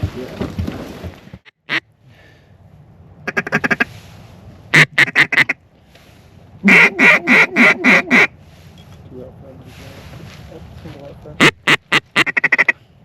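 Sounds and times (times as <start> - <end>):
duck quacking: 3.2 - 3.9, 4.7 - 5.6, 6.6 - 8.3, 11.4 - 12.8.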